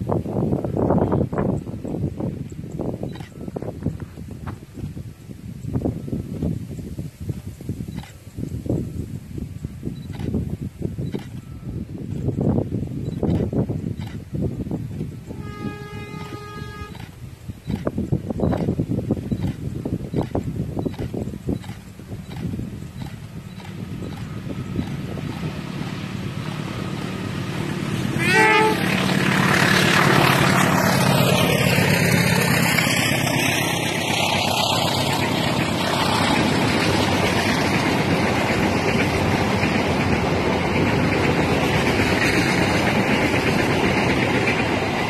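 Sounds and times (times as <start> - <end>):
train wheels rumbling on track: 0.0 - 45.0
train horn blast: 15.2 - 17.3, 26.5 - 33.0.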